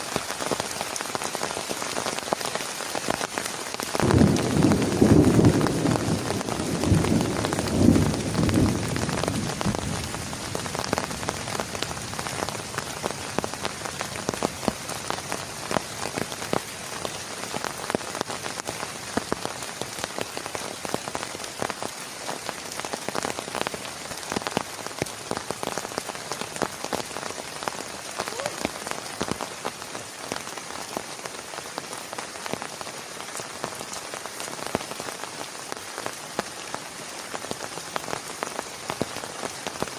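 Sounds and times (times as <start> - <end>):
heavy rain falling: 0.0 - 39.9
raindrops striking a surface: 0.0 - 39.9
low rumble of thunder: 4.0 - 10.2.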